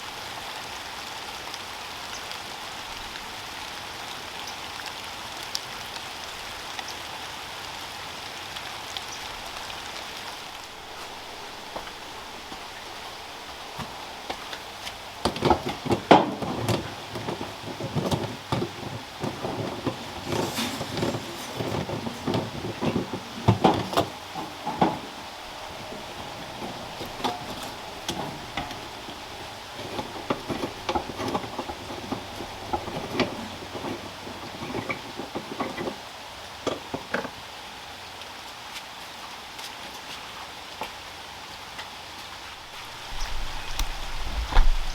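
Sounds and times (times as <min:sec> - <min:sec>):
steady rain: 0:00.0 - 0:44.9
objects knocking and clattering: 0:10.7 - 0:36.0.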